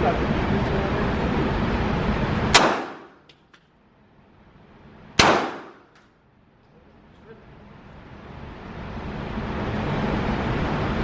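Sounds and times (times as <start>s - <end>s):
pistol shot: 2.5s - 3.3s, 5.2s - 6.0s.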